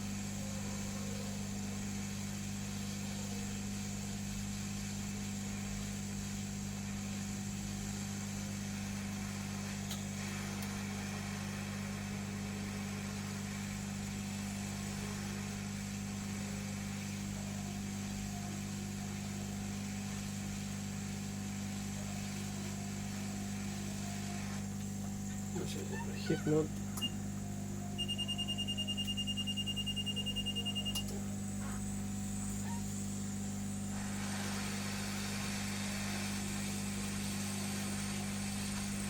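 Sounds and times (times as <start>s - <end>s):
hot air gun blower hissing: 32.4s - 39.0s.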